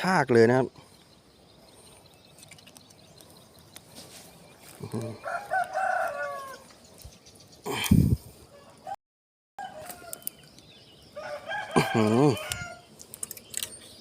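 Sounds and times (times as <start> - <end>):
rooster crowing: 5.1 - 6.7, 8.5 - 9.0, 9.6 - 10.4, 11.1 - 12.9.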